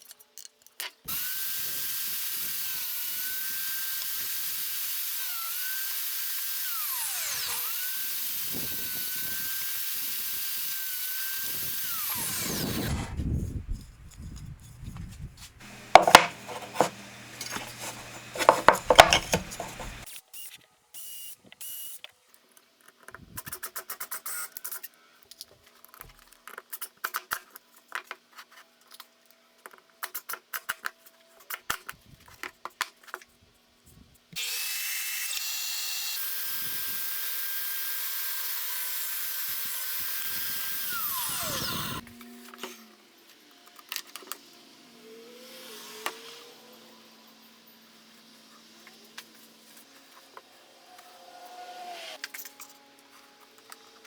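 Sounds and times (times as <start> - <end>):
power tool motor running: 1.1 - 13.1, 15.6 - 20.1, 39.3 - 43.6
scraping: 12.5 - 20.1
knocks and clicks of handling: 15.6 - 20.0.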